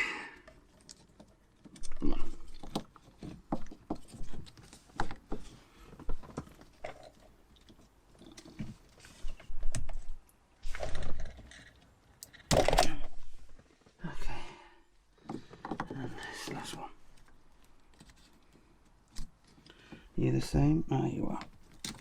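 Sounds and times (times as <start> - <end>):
clicks and knocks of tools: 21.4 - 22.0.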